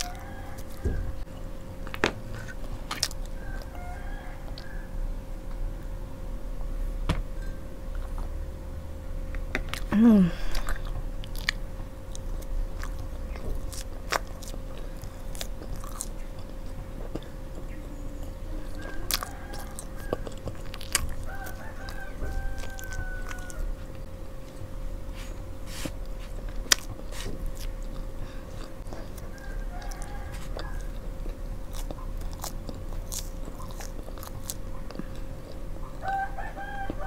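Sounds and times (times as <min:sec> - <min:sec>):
rooster crowing faintly: 0:00.0 - 0:01.3, 0:03.1 - 0:05.7, 0:17.6 - 0:24.1, 0:28.4 - 0:31.2, 0:35.9 - 0:37.0
chewing and mouth sounds: 0:00.0 - 0:04.8, 0:09.3 - 0:37.0
steady low hum: 0:00.0 - 0:37.0.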